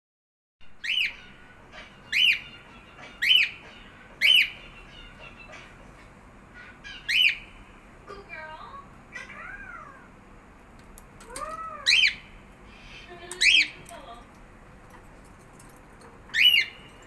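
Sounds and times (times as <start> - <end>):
cockatiel whistled calls: 0.8 - 5.7, 16.3 - 16.8.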